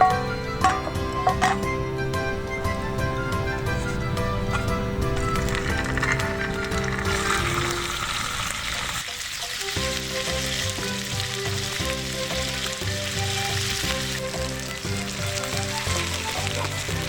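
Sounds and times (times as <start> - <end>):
background music with a beat: 0.0 - 7.5, 9.5 - 17.0
food sizzling in a pot: 5.0 - 17.0.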